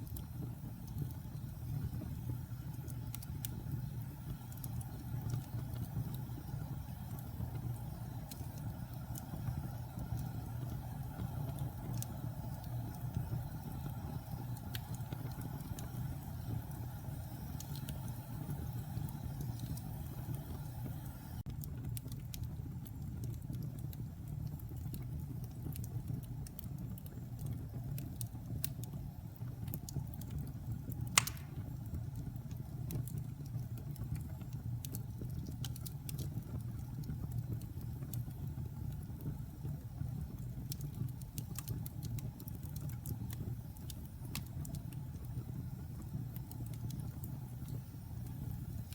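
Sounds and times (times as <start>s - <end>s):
fire rumbling and crackling: 0.0s - 48.9s
loud fire pop: 31.2s - 31.7s.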